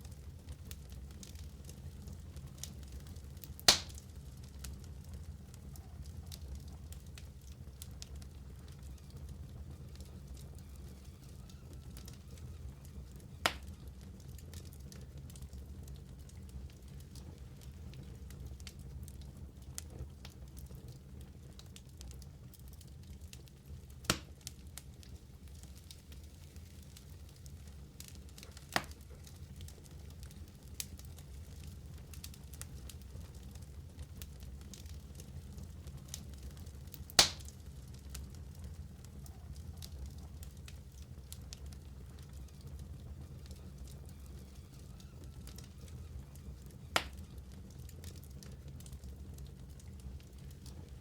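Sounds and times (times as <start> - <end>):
low rumble of flames: 0.0 - 51.0
wood fire crackling: 0.0 - 51.0
wood fire pop: 3.6 - 4.1, 13.4 - 13.8, 24.1 - 24.4, 28.7 - 29.2, 37.0 - 37.6, 46.6 - 47.3
loud fire pop: 3.7 - 4.0, 24.1 - 24.3, 37.2 - 37.5, 47.0 - 47.2.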